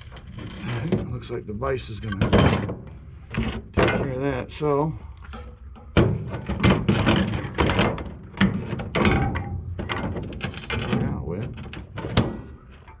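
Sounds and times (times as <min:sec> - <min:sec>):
scrap metal clanking: 0:05.3 - 0:13.0.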